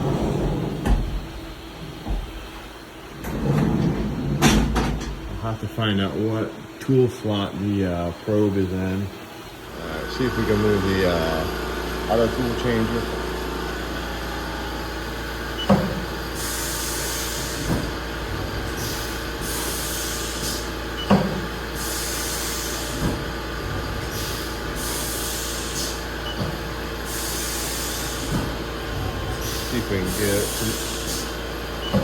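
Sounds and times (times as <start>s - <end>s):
machining center humming: 0.0s - 32.0s
air hissing bursts: 15.7s - 18.0s, 18.7s - 23.3s, 24.0s - 26.2s, 27.0s - 31.5s.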